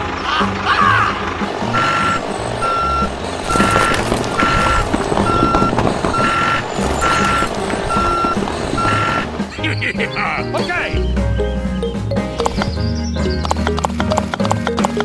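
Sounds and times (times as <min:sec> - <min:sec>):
vehicle reversing alarm beeping: 0:01.7 - 0:09.5.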